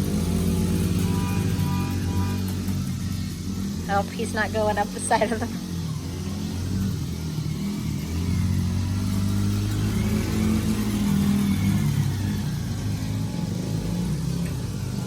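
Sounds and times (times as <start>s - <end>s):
small off-road vehicle engine: 0.0s - 15.0s.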